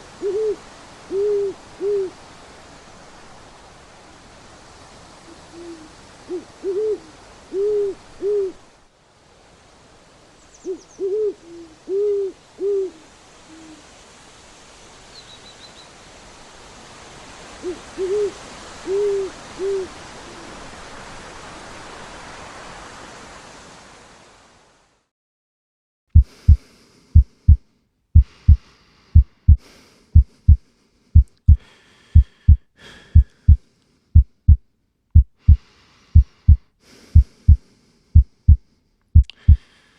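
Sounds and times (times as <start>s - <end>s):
steady hiss: 0.0s - 25.0s, 26.2s - 34.3s, 35.4s - 39.9s
owl hooting: 0.2s - 2.2s, 5.2s - 8.6s, 10.6s - 13.9s, 17.6s - 20.6s
heartbeat thumps: 26.2s - 27.6s, 28.2s - 28.6s, 29.2s - 30.6s, 31.2s - 31.6s, 32.2s - 33.6s, 34.2s - 34.6s, 35.2s - 35.6s, 36.2s - 37.6s, 38.2s - 38.6s, 39.2s - 39.6s.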